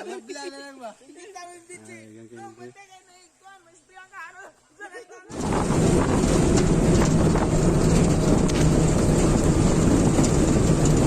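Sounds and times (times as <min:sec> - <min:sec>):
wind rumble on microphone: 0:05.3 - 0:11.0.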